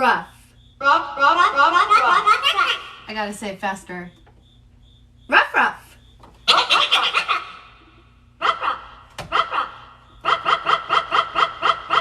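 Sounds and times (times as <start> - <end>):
woman imitating dog barks: 0.8 - 2.9.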